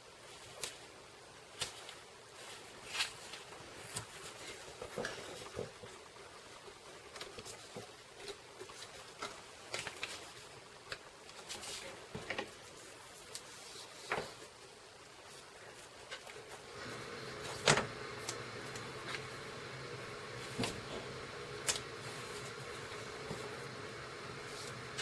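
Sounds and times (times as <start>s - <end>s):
paper rustling: 7.1s - 14.6s, 15.2s - 25.0s.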